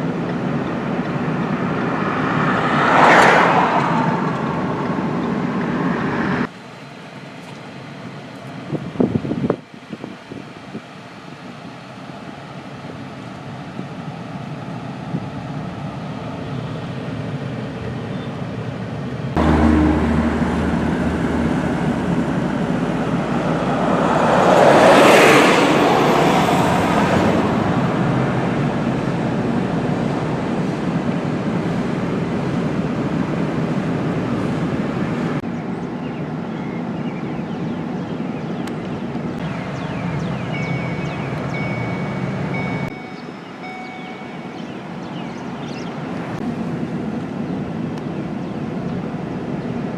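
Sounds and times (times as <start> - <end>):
road vehicle noise: 0.0 - 49.9
vehicle passing: 0.8 - 6.5, 19.3 - 35.4.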